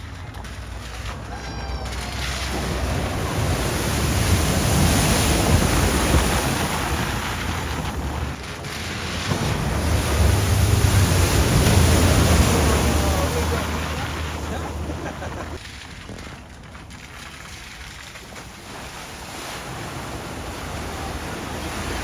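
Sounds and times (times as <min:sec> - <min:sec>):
deep rumble: 0:00.0 - 0:17.4
vehicles splashing through water: 0:00.0 - 0:22.0.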